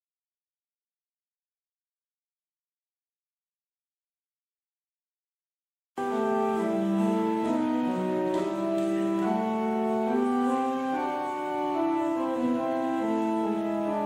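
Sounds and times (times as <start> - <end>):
church organ chords: 6.0 - 14.0.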